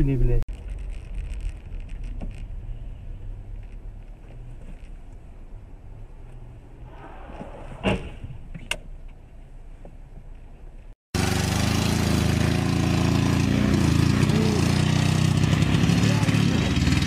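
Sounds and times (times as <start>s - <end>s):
quiet car hum: 0.0s - 11.0s
car engine revving rough: 11.2s - 17.0s.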